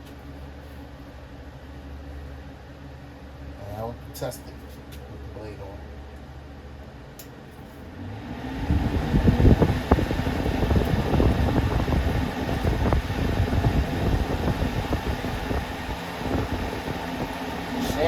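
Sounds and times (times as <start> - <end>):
box fan rough air rush: 7.4 - 18.0.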